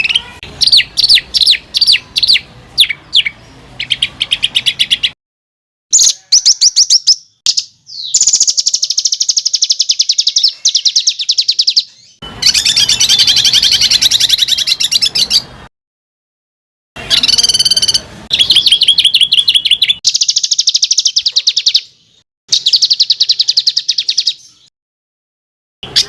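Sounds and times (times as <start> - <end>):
songbird harsh trills: 5.9 - 15.5, 17.0 - 24.7.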